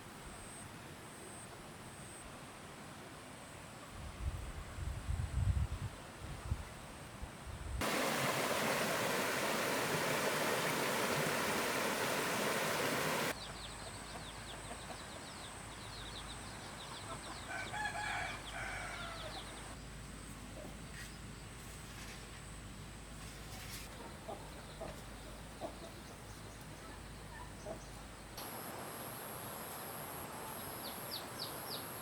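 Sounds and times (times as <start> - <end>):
loud steady rushing noise: 7.8 - 13.3.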